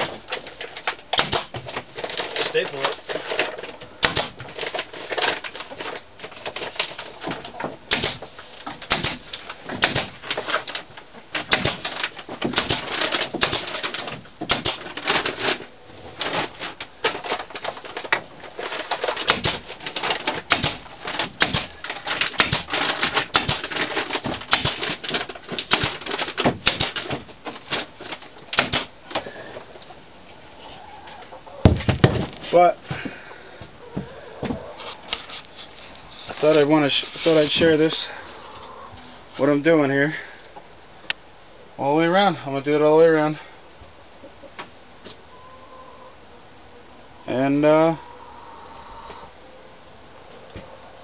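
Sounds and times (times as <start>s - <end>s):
plastic bag rustling: 0.0s - 30.3s, 31.6s - 38.3s
staple gun firing: 1.2s - 1.5s, 4.0s - 4.4s, 20.5s - 21.7s, 26.6s - 27.0s.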